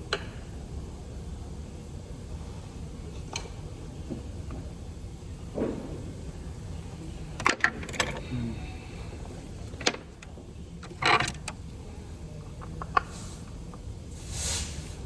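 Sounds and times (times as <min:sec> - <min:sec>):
low steady hum: 0:00.0 - 0:15.0
metal tools clicking and knocking: 0:07.4 - 0:08.2, 0:09.6 - 0:11.6.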